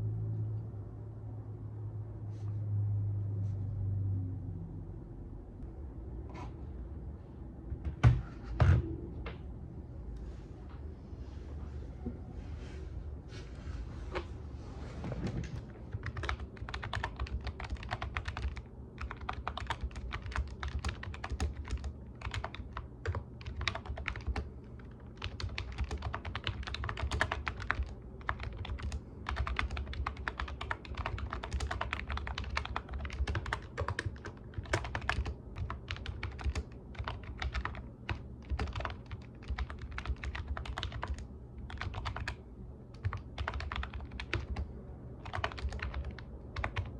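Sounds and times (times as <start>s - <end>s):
low steady hum: 0.0s - 46.9s
keyboard typing clicks: 25.2s - 42.4s, 45.2s - 46.9s.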